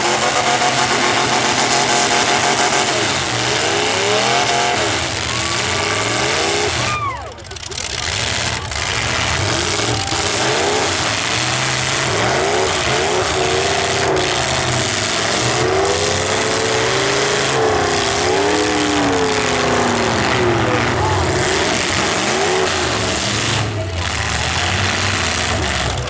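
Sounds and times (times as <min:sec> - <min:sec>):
car engines revving hard: 0:00.0 - 0:26.0.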